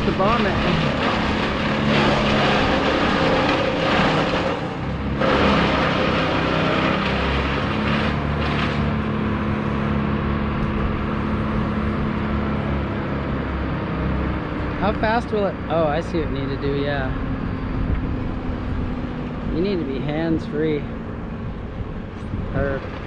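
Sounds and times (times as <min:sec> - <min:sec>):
rushing noise: 0:00.0 - 0:12.8
engine running: 0:00.0 - 0:23.0.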